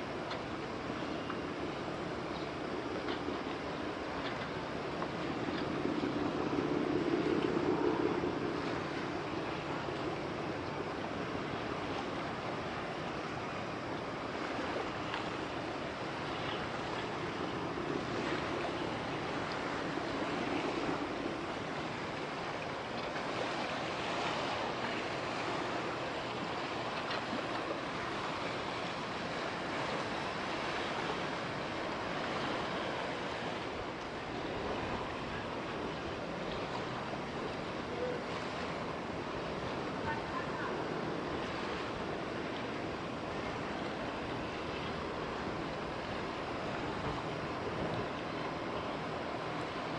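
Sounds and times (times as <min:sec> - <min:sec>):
moving water: 0:00.0 - 0:49.9
wind on microphone: 0:02.1 - 0:12.5.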